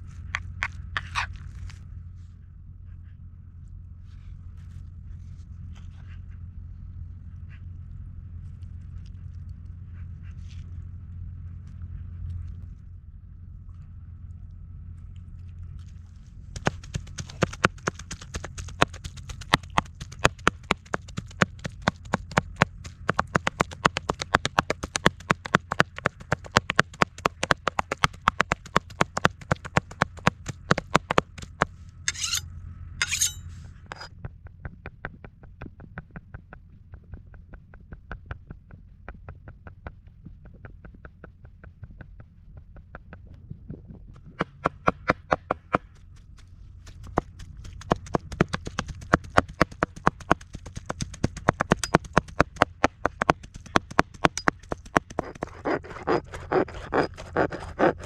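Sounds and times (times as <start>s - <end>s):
knife scraping board: 32.1s - 32.4s, 33.0s - 34.1s, 55.2s - 58.0s.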